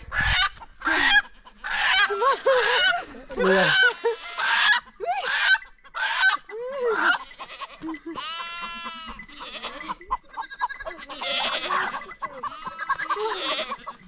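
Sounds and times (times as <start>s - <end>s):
goats bleating: 0.8s - 14.0s.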